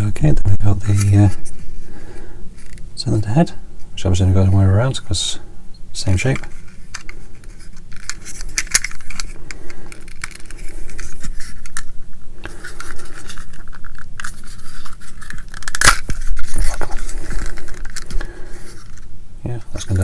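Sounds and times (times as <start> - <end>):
plastic parts clicking and scraping: 2.6 - 2.8, 6.1 - 19.1.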